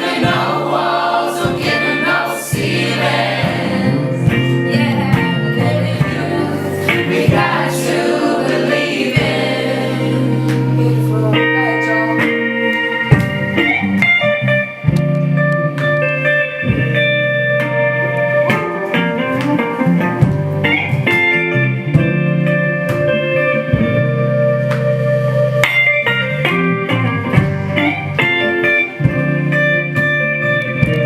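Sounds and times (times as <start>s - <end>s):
sustained lower tones: 0.0s - 12.6s
guitar plucked notes: 0.0s - 31.0s.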